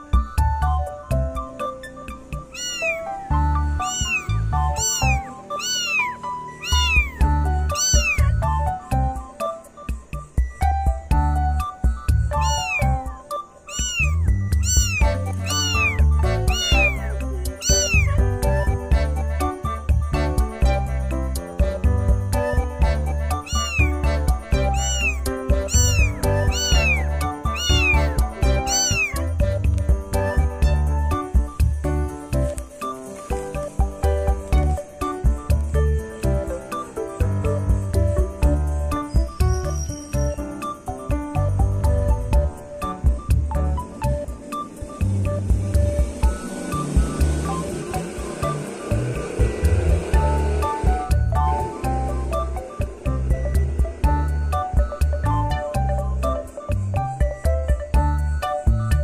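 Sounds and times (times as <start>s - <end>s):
background music with a beat: 0.0s - 5.4s, 6.8s - 59.0s
cat meowing: 2.4s - 8.9s, 12.3s - 18.5s, 23.3s - 29.5s.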